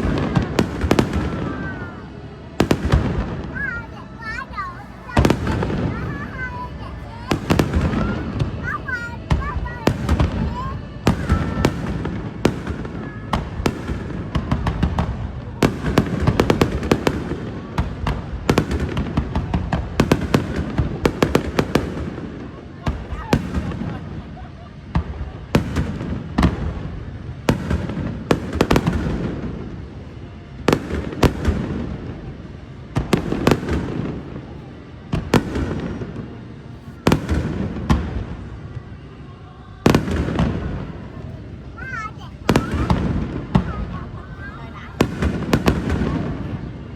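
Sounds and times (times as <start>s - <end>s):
fireworks banging and crackling: 0.0s - 39.2s, 39.8s - 46.9s
low rumbling echo: 0.0s - 46.9s.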